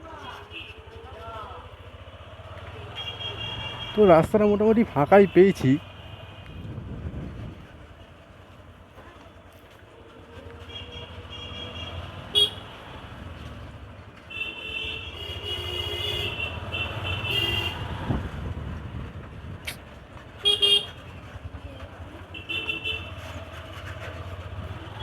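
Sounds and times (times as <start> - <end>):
motorcycle engine rumble: 0.3 - 5.0
vehicle horns honking: 2.6 - 4.3, 10.7 - 12.9, 14.3 - 18.1, 20.4 - 21.0, 22.3 - 23.3.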